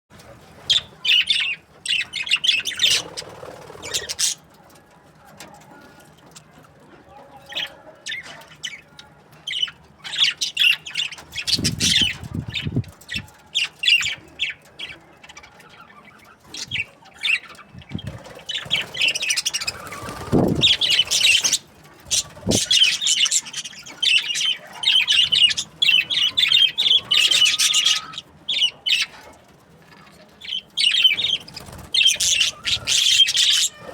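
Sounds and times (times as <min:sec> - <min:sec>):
budgerigars chattering: 0:00.7 - 0:04.5, 0:09.5 - 0:14.6, 0:15.4 - 0:29.2, 0:30.4 - 0:33.9
wing flutters: 0:17.9 - 0:22.9.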